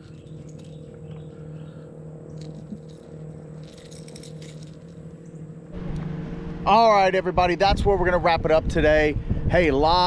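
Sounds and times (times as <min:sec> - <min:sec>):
steady low hum: 0:00.0 - 0:10.0
light rattling and clicking: 0:02.3 - 0:05.4.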